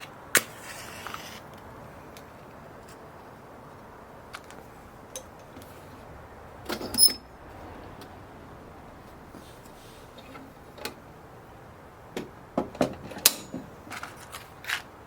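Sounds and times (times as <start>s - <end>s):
low hiss: 0.0s - 15.0s
bonfire crackling: 0.5s - 12.5s.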